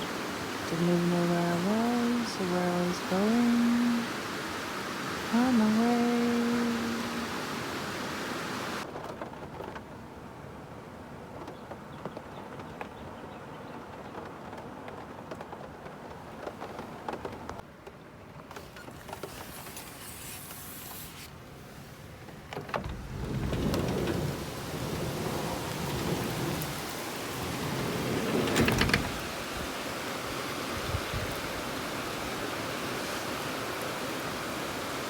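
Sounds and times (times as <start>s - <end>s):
rain falling: 0.0s - 17.6s, 18.3s - 35.0s
thunder rumbling: 22.8s - 29.8s.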